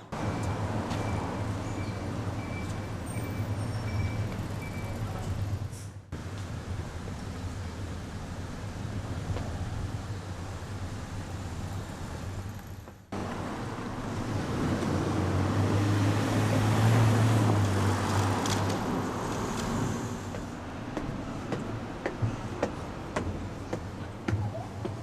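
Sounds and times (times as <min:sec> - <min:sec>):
vehicle passing: 0:13.2 - 0:23.7.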